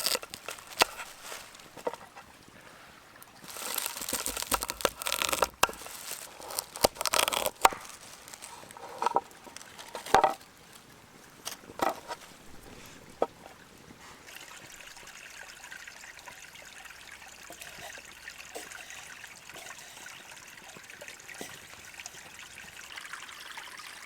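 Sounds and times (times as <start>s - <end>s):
rustling and crinkling: 0.0s - 14.8s.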